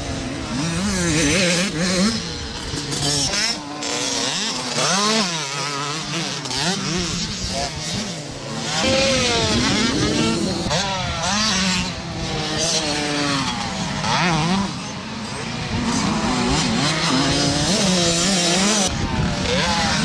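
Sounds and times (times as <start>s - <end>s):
motocross bike engines revving: 0.0s - 20.0s.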